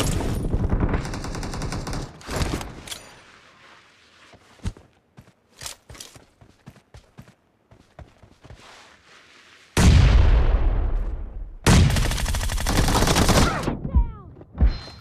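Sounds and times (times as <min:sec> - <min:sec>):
video game automatic gunfire: 0:00.4 - 0:02.1, 0:11.7 - 0:13.5.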